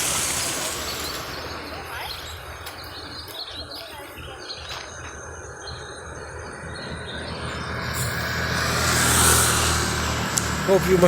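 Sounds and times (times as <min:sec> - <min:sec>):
vehicle engine passing: 0:00.0 - 0:02.8, 0:05.1 - 0:11.0
birds chirping: 0:00.0 - 0:11.0
insects chirping: 0:00.0 - 0:11.0.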